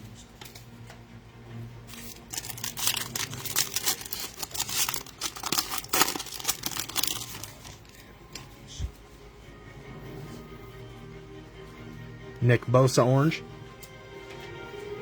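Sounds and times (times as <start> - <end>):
wrapper tearing and crinkling: 1.9 - 8.0.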